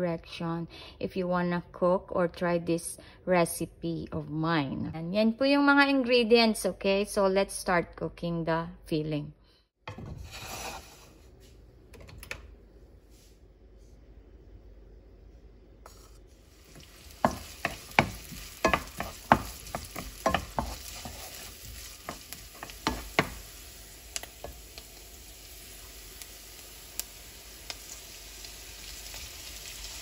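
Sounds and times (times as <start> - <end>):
onion sizzling in hot oil: 15.9 - 30.0
wooden spatula knocking on pan: 17.2 - 23.4.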